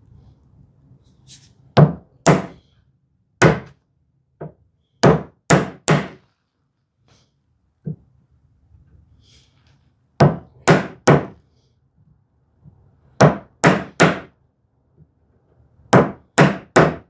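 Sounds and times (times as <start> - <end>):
chisel struck into wood: 1.8 - 2.6, 3.4 - 3.7, 5.0 - 6.2, 10.2 - 11.4, 13.2 - 14.3, 16.0 - 17.0.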